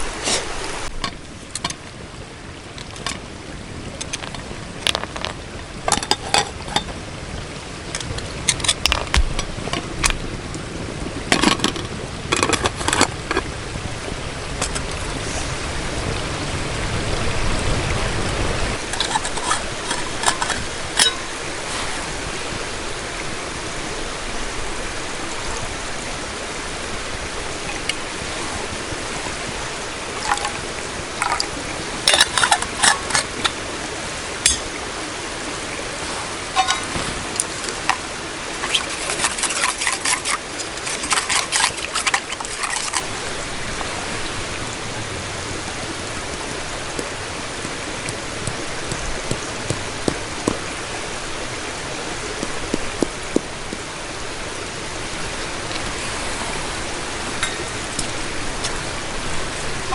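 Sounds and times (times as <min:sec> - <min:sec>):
steady hiss: 0:00.0 - 0:16.2.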